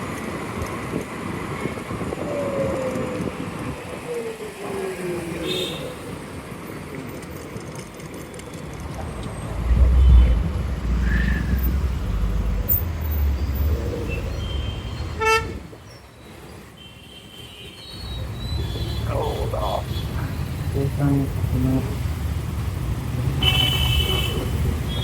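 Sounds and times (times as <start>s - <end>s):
road traffic noise: 0.0s - 25.0s
heavy low rumble: 8.8s - 15.7s
vehicle horn toot: 14.2s - 15.7s, 23.4s - 25.0s.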